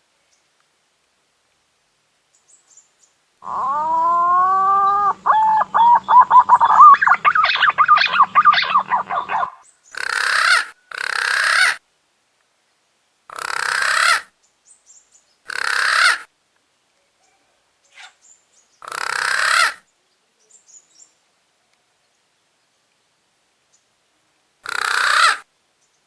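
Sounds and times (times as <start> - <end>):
breathy hoarse bursts: 3.4 - 9.6
fluty whistled pigeon calls: 3.5 - 9.6.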